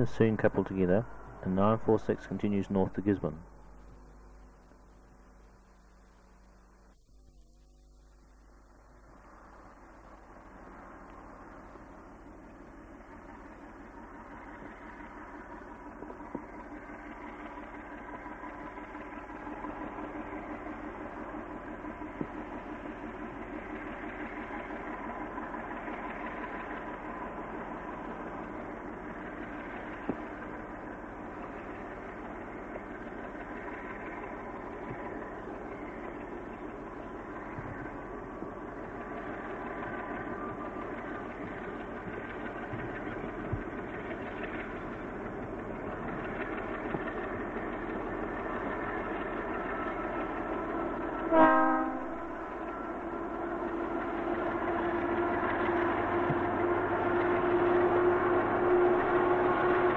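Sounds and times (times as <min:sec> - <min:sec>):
diesel locomotive engine running: 0:00.0 - 0:59.9
train horn blast: 0:51.2 - 0:53.9, 0:54.8 - 0:59.9.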